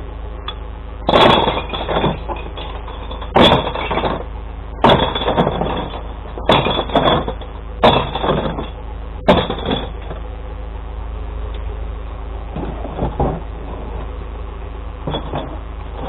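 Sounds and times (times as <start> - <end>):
truck engine running: 0.0 - 16.0
glass bottles smashing: 1.1 - 10.1.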